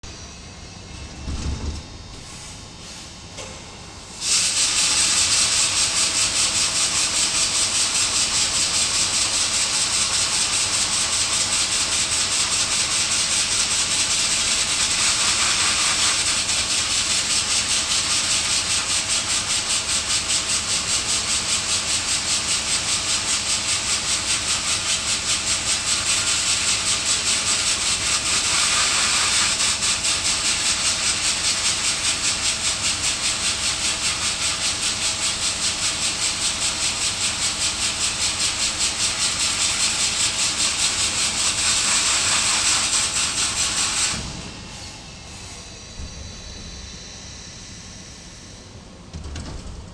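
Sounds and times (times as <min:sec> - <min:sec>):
high-pressure water jet hissing: 0:04.2 - 0:45.0.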